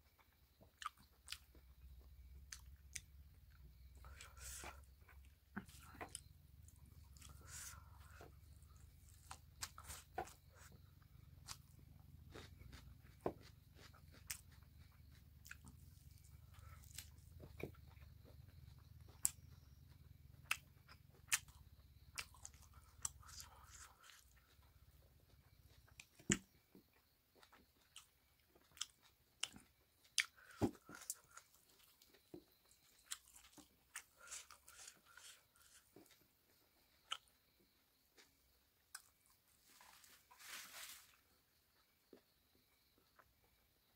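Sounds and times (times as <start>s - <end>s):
person chewing with wet smacks: 0.2s - 3.1s, 3.7s - 24.6s, 25.4s - 36.2s.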